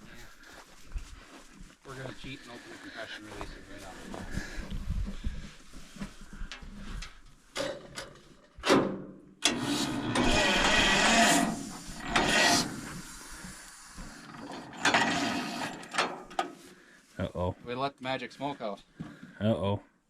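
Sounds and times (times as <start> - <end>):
starter motor cranking engine: 9.4 - 13.1, 14.2 - 16.0.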